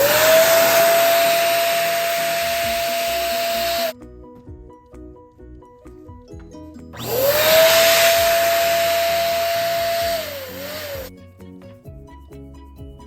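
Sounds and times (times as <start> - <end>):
balloon inflator blowing air: 0.0 - 4.0, 7.0 - 11.1
background music: 3.9 - 13.0.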